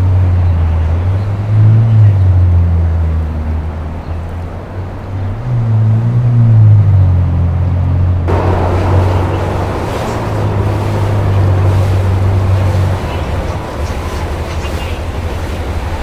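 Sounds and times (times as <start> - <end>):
boat engine droning: 0.0 - 16.0
rushing hiss: 8.3 - 16.0.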